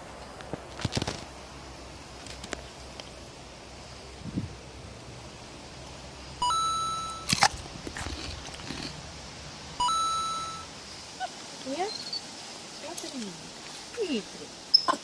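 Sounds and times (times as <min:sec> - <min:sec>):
electronic beeps: 0:06.4 - 0:07.3, 0:09.8 - 0:10.7.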